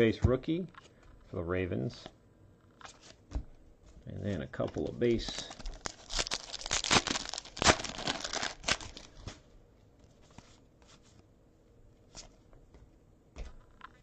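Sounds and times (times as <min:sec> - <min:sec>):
wrapper crinkling and rustling: 0:04.5 - 0:09.5.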